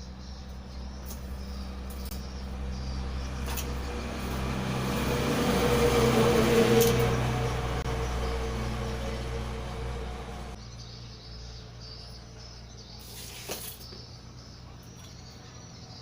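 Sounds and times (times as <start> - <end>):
low electrical hum: 0.0 - 16.0
motor vehicle passing by: 0.0 - 16.0.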